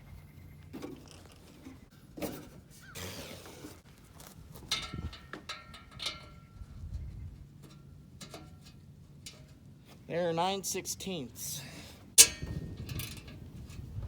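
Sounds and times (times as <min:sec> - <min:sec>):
hand tools clicking and knocking: 0:12.2 - 0:13.2.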